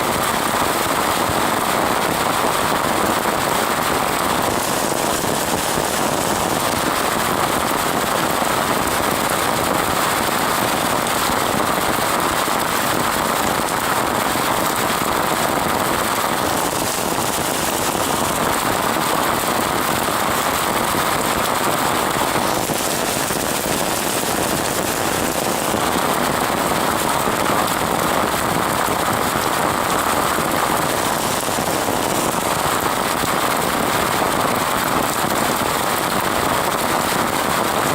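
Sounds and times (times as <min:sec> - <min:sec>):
rain falling: 0:21.7 - 0:27.0.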